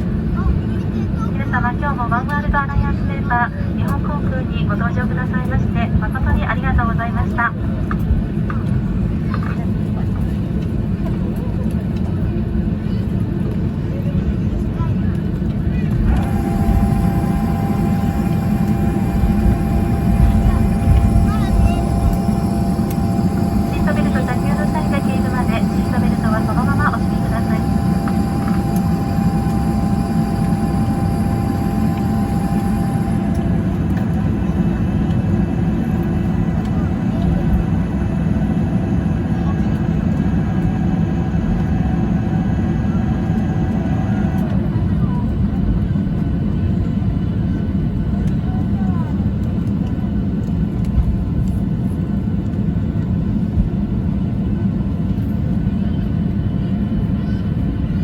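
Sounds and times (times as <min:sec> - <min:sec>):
jet cabin engine rumble: 0:00.0 - 0:58.0
thin steady whine: 0:16.0 - 0:44.6.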